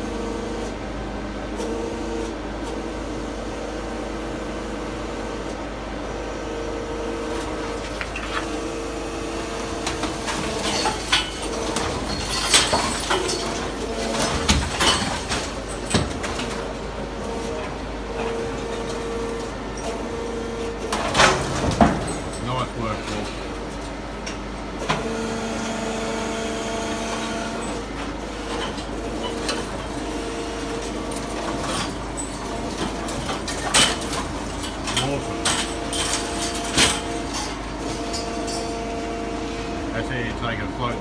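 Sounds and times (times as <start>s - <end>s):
hydraulic power pack humming: 6.4s - 12.2s.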